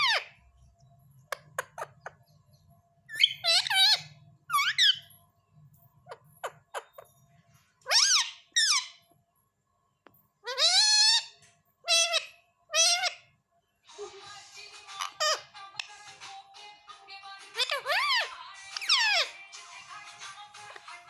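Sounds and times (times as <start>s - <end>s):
parrot squawking: 0.0s - 0.4s, 1.3s - 2.2s, 3.1s - 5.1s, 6.1s - 7.0s, 7.9s - 9.0s, 10.4s - 13.3s, 14.8s - 16.0s, 17.4s - 21.0s
parrot chirping: 0.0s - 5.2s, 5.9s - 7.2s, 7.8s - 9.2s, 10.4s - 14.2s, 14.8s - 16.2s, 17.4s - 21.0s.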